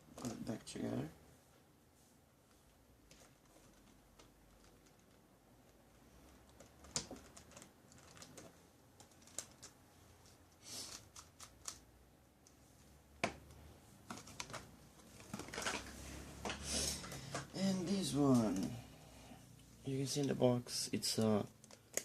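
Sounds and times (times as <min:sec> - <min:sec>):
plastic puzzle pieces clicking: 0:21.5 - 0:22.0.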